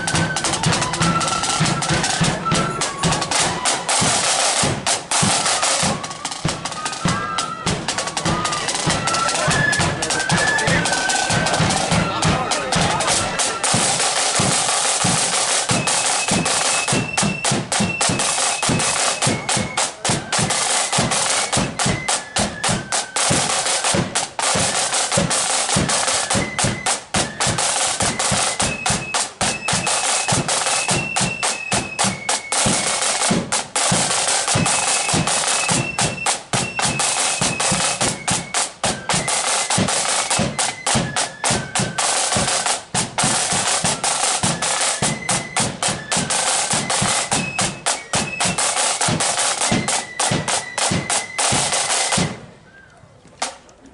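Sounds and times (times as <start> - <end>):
snare drum rolls: 0.0 - 52.6
flute melody: 0.0 - 53.3
bass drum beats: 7.7 - 14.6.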